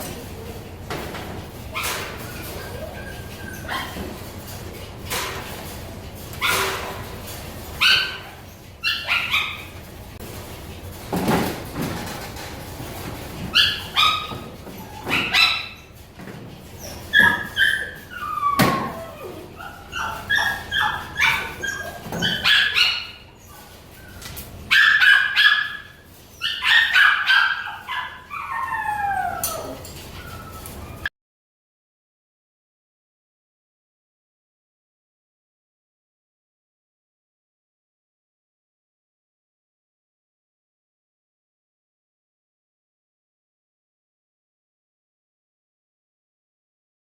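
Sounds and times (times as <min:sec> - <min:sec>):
dogs whining: 0:01.7 - 0:04.2, 0:07.7 - 0:09.8, 0:13.5 - 0:16.0, 0:16.7 - 0:31.1
dogs barking and yipping: 0:01.7 - 0:05.3, 0:06.3 - 0:10.0, 0:13.4 - 0:31.1.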